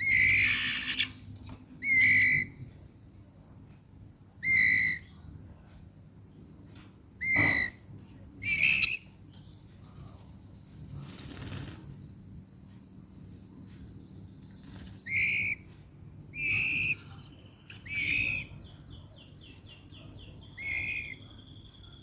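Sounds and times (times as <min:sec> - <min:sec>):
bird squawking calls: 0:00.0 - 0:01.2, 0:01.8 - 0:02.6, 0:04.4 - 0:05.1, 0:07.2 - 0:07.8, 0:08.4 - 0:09.0, 0:15.0 - 0:15.7, 0:16.3 - 0:17.0, 0:17.7 - 0:18.6, 0:20.5 - 0:21.3.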